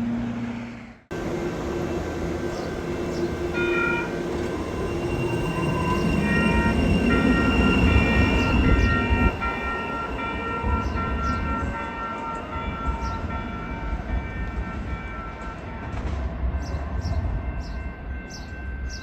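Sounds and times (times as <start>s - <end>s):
light rail train rumbling past: 0.0s - 19.0s
warning bell ringing: 1.9s - 15.9s.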